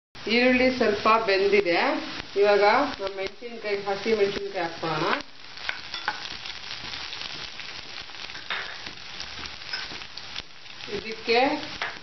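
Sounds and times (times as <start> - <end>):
onions sizzling in hot oil: 0.2 - 12.0
spatula stirring in pan: 4.8 - 12.0.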